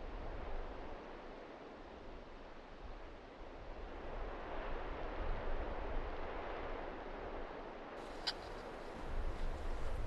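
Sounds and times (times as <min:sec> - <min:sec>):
wind rumble on microphone: 0:00.0 - 0:10.0
steady wind hissing: 0:02.6 - 0:10.0.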